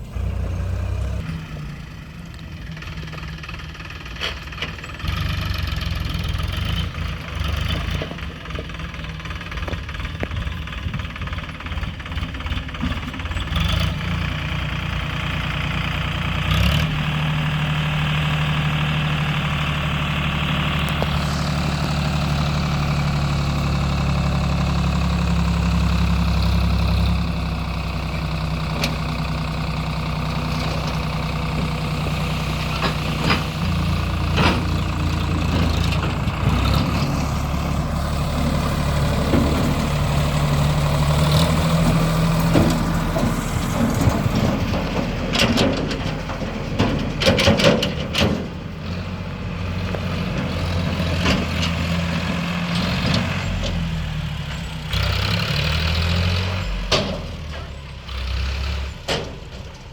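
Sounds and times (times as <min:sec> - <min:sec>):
tractor diesel engine humming: 0:00.0 - 0:59.9
metal knocks and clanks: 0:32.6 - 0:37.6, 0:41.8 - 0:48.7, 0:56.7 - 0:57.8.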